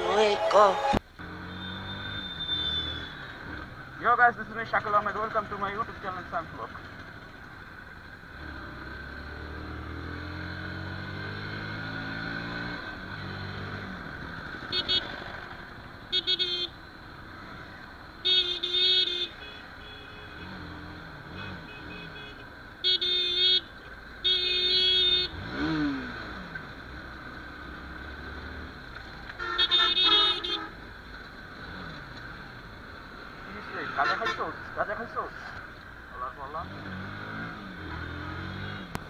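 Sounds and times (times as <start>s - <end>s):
vehicle horns honking: 0.0s - 3.2s, 14.6s - 15.4s, 16.1s - 16.8s, 18.2s - 25.9s, 29.3s - 30.8s, 33.4s - 35.4s
motorcycle engine accelerating: 36.6s - 39.0s.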